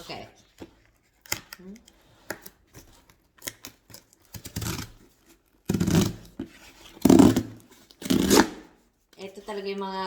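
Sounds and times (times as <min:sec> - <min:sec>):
cardboard tearing: 0:02.6 - 0:08.8.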